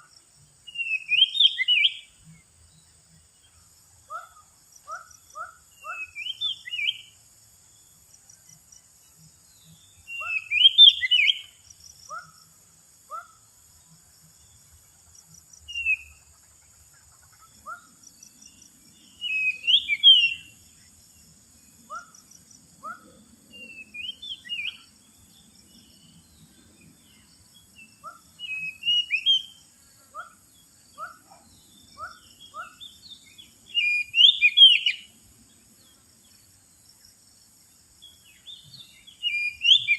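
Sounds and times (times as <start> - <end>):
bird singing whistled phrases: 0.7 - 2.1, 5.4 - 7.2, 10.0 - 12.3, 15.7 - 16.1, 19.2 - 20.5, 22.8 - 24.9, 28.0 - 29.6, 32.0 - 35.1, 38.5 - 39.9.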